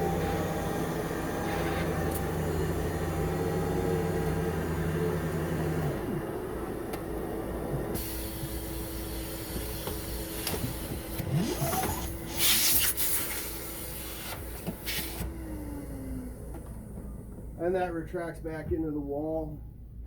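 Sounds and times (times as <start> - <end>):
motor hum: 0.0 - 12.4, 13.5 - 17.9
hose sucked into wall inlet: 11.2 - 15.3.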